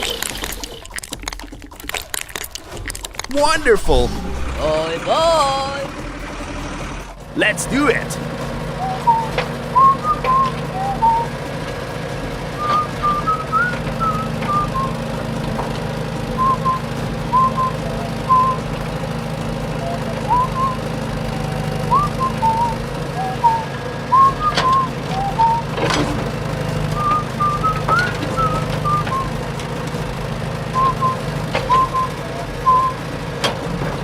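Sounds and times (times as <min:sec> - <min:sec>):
steady low hum: 0:02.6 - 0:33.2
person whistling a tune: 0:08.7 - 0:11.4, 0:12.5 - 0:15.0, 0:16.3 - 0:18.8, 0:19.6 - 0:25.8, 0:26.9 - 0:29.4, 0:30.7 - 0:33.0.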